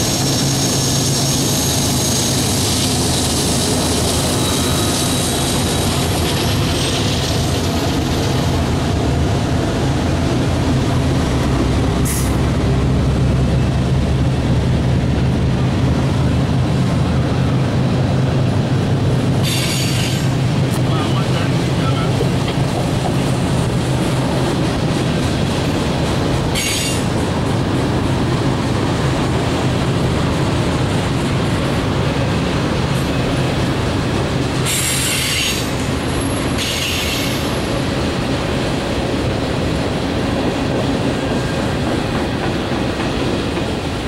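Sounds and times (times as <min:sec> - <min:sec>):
wheels screeching: 0:00.0 - 0:07.9
steel wheels rumbling on rails: 0:00.0 - 0:44.0.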